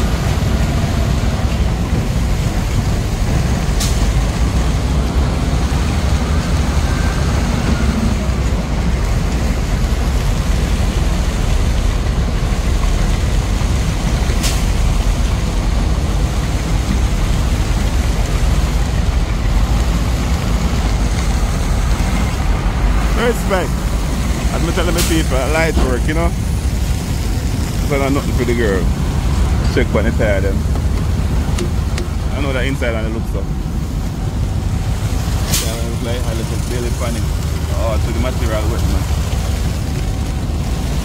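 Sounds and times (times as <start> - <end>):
heavy truck engine running: 0.0 - 41.0.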